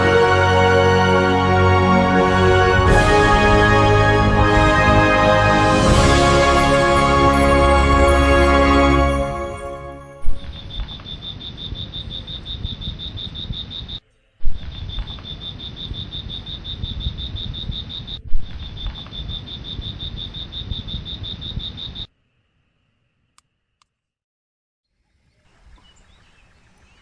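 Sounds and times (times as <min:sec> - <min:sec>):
heavy low rumble: 0:00.0 - 0:11.0.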